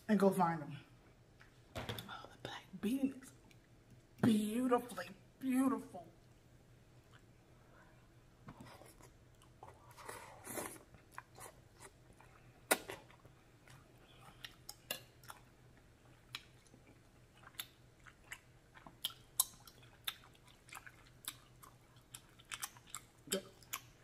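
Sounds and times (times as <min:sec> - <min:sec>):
wet chewing with smacks: 0:10.8 - 0:24.0.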